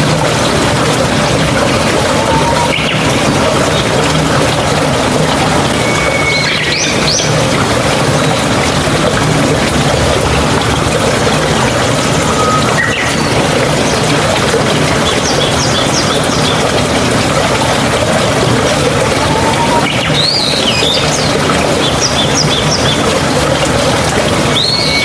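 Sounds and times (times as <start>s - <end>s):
stream water flowing and splashing: 0.0s - 25.0s
birds chirping: 1.5s - 4.2s, 5.6s - 8.5s, 11.8s - 16.9s, 18.1s - 23.4s, 24.3s - 25.0s.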